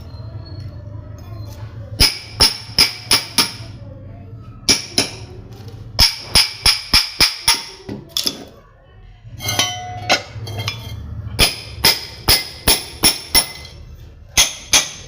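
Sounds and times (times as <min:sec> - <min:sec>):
low steady hum: 0:00.0 - 0:15.0
metal striking metal: 0:09.4 - 0:13.8.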